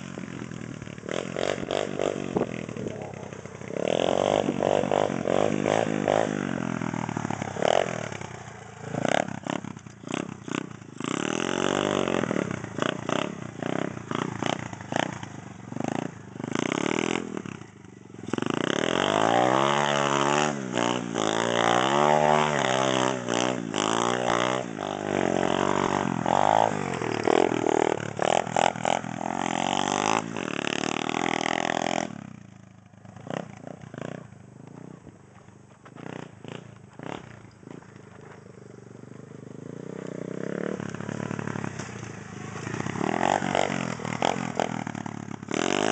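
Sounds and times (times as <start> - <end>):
motorbike engine revving: 0.0 - 45.9.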